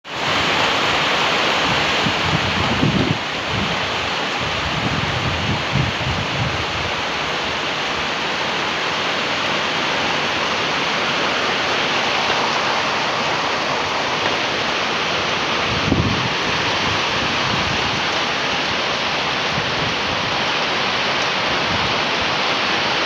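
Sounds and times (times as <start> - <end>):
heavy rain falling: 0.0 - 23.0
wind buffeting microphone: 1.6 - 8.1, 12.0 - 22.4.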